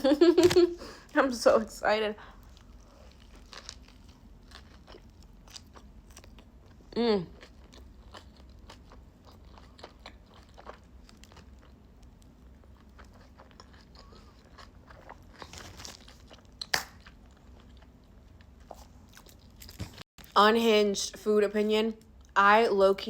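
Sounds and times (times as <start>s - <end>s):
biting and chewing food: 2.4s - 20.4s.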